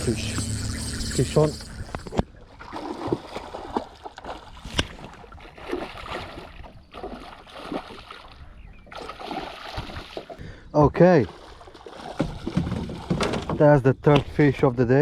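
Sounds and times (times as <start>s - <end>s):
water splashing around boat: 0.0s - 10.4s, 11.1s - 14.4s.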